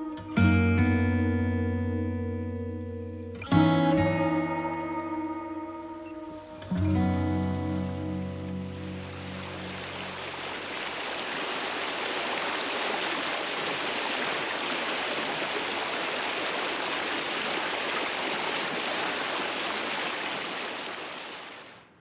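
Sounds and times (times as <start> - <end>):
water rushing: 5.0 - 22.0.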